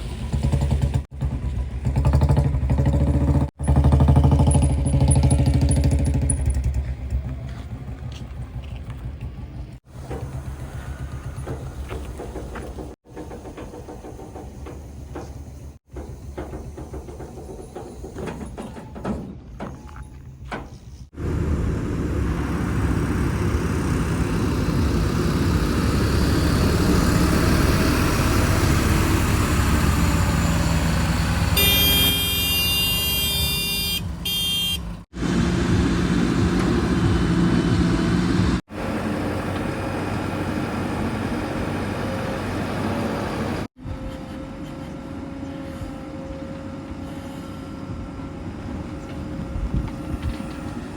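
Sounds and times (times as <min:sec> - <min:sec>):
heavy vehicle engines running: 0:00.0 - 0:18.8, 0:20.5 - 0:50.9
vehicle horn: 0:31.5 - 0:34.9.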